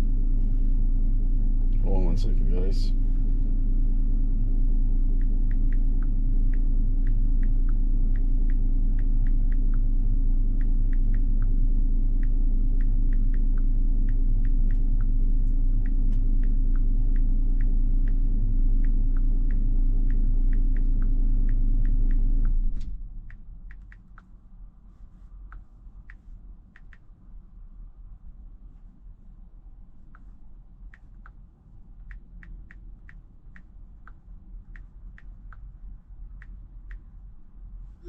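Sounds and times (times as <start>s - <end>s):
vehicle engine idling: 0.0s - 23.7s
light ticks: 5.1s - 9.9s, 10.5s - 27.2s, 30.0s - 37.2s.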